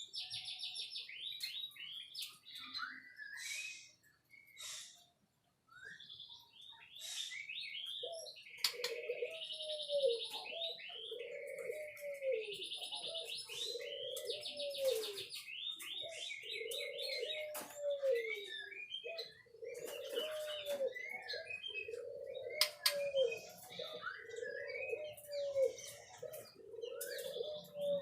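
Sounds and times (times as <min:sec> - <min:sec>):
bird singing whistles and trills: 0:00.0 - 0:05.0, 0:05.6 - 0:28.0
low cooing call: 0:08.0 - 0:15.3, 0:15.9 - 0:28.0.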